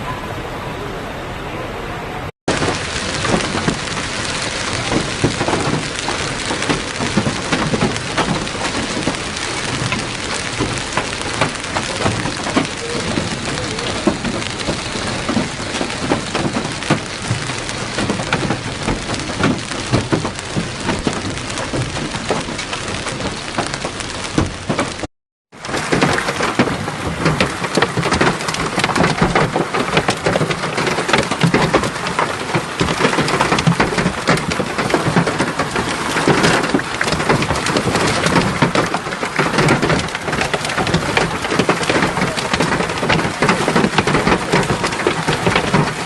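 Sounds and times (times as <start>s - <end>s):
hailstones clattering: 2.5s - 46.0s.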